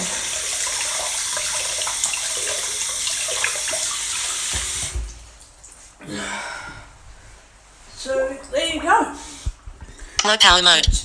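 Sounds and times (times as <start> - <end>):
tap running into a sink: 0.0 - 5.4
tap turned off with thud: 4.5 - 5.2.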